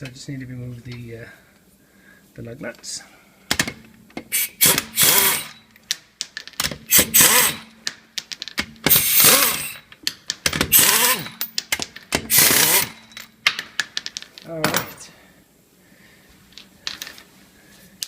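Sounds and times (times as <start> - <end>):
impact gun spinning lug nuts: 3.5 - 5.7, 6.3 - 14.2.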